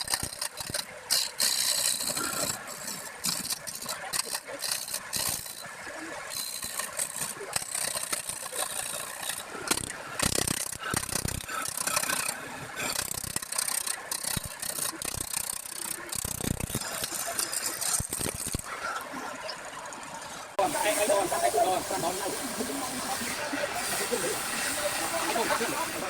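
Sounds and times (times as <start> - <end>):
lathe tool scraping wood: 20.6 - 26.0.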